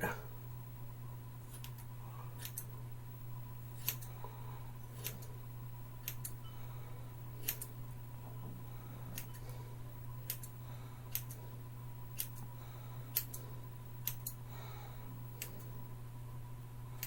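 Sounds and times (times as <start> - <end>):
steady low hum: 0.0 - 17.0
scissors snipping hair: 1.5 - 2.7, 3.8 - 4.2, 5.0 - 5.3, 6.0 - 6.4, 7.4 - 7.8, 10.2 - 11.4, 12.2 - 12.5, 13.1 - 13.4, 14.0 - 14.4.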